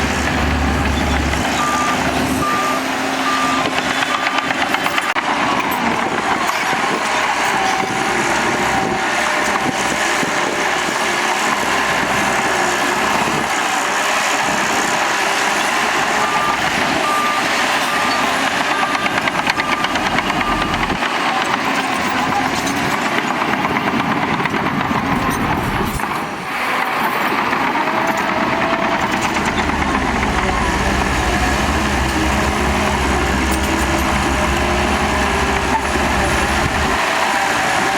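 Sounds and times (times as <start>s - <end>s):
heavy machinery running: 0.0s - 37.9s
reversing alarm beeping: 0.8s - 5.8s, 16.1s - 21.0s.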